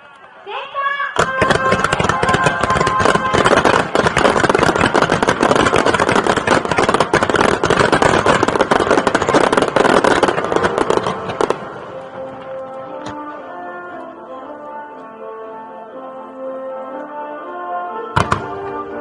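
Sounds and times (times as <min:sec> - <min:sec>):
fireworks bangs and crackles: 0:01.2 - 0:13.3, 0:18.2 - 0:19.0.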